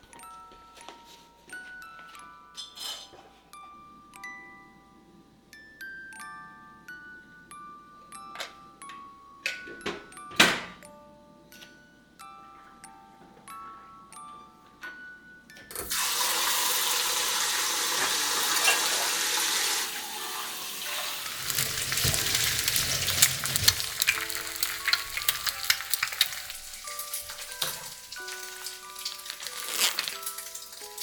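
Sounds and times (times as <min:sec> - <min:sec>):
food sizzling in hot oil: 0:15.8 - 0:31.0.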